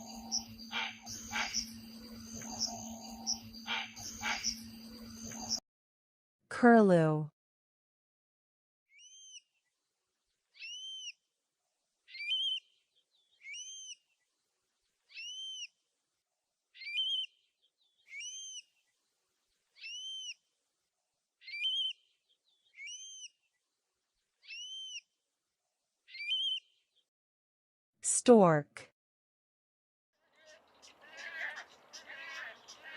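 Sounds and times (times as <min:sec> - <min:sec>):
curlew calling: 0:00.0 - 0:05.6, 0:30.4 - 0:32.9.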